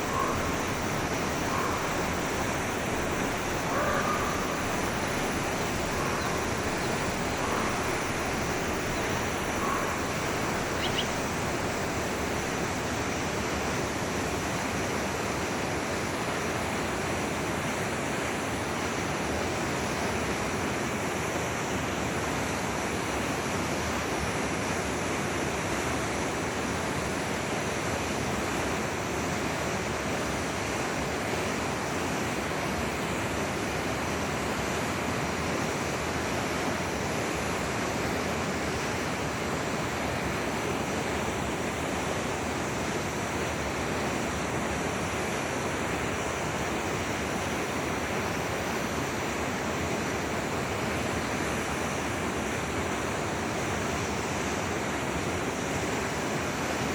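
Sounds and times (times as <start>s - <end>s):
faint bird notes: 0.0s - 11.6s
forest stream flowing: 0.0s - 56.9s.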